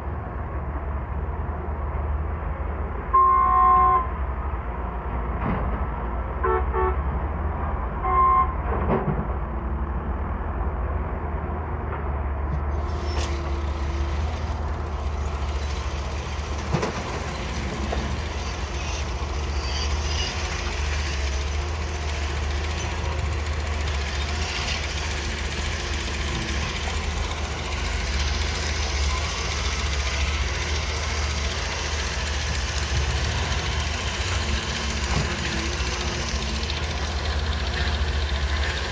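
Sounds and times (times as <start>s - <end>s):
excavator diesel engine rumbling: 0.0s - 38.9s
vehicle horn toots: 3.2s - 4.1s, 6.4s - 7.0s, 8.0s - 8.6s
rough hissing working noise: 12.7s - 38.9s.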